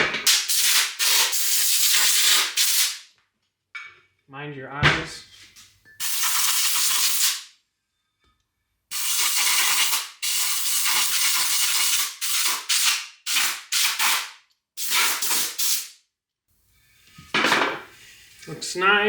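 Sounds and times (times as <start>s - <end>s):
compressed-air blow gun hissing: 0.2s - 3.0s, 6.0s - 7.4s, 8.9s - 15.9s.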